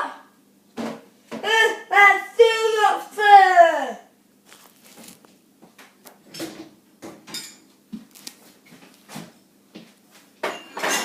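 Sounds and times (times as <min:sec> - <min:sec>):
dishes and cutlery clinking: 0:07.1 - 0:07.7, 0:10.4 - 0:11.0.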